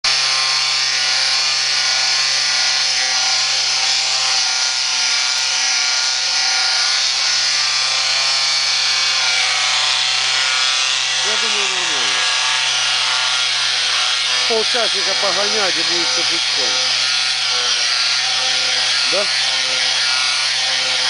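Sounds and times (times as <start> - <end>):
grinder motor running: 0.1 - 21.0
abrasive grinding hiss: 11.2 - 12.4, 13.0 - 19.8.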